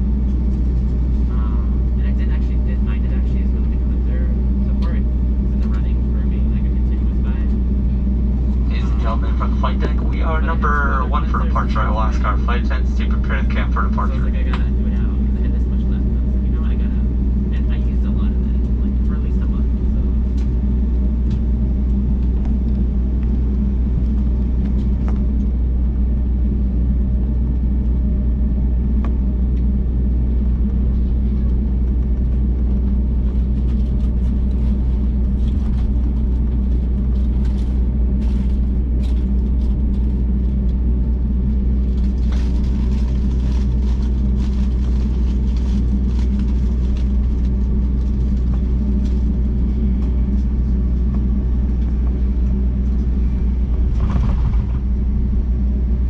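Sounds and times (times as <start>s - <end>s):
jet engine cabin rumble: 0.0s - 56.0s
rattles and clicks: 53.7s - 55.0s.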